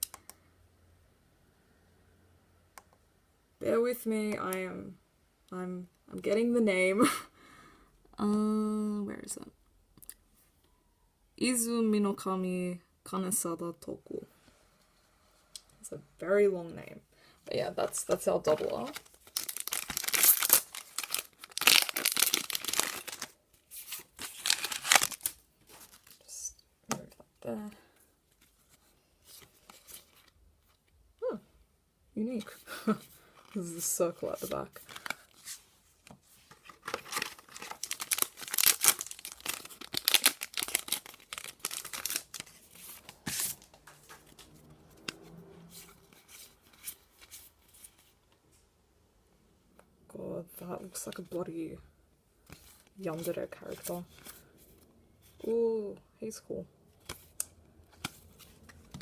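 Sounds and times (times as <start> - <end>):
wrapper crinkling and tearing: 18.5 - 26.3, 34.4 - 35.5, 36.6 - 44.6.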